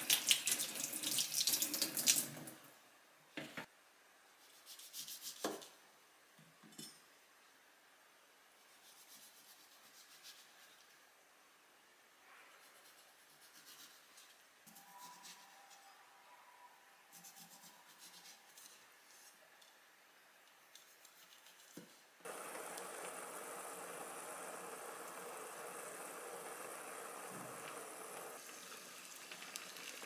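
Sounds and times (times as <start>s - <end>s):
food frying sizzle: 0.0s - 2.4s, 22.3s - 30.0s.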